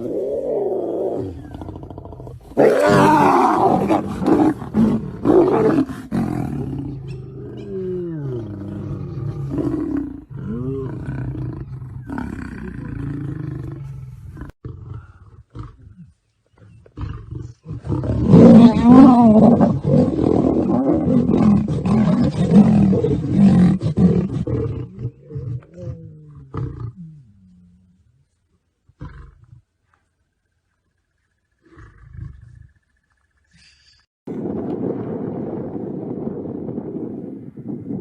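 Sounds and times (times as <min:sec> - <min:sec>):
lions roaring: 0:00.0 - 0:13.9, 0:17.0 - 0:27.4.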